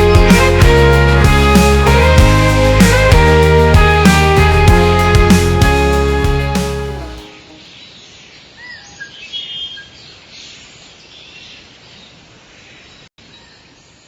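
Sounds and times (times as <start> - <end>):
bird chirps: 7.5 - 13.7.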